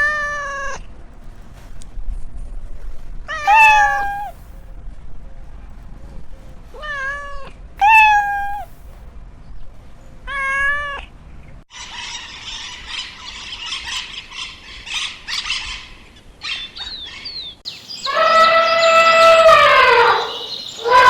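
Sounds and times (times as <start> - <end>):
cat meowing: 3.3 - 4.4, 6.8 - 8.8, 18.1 - 21.0.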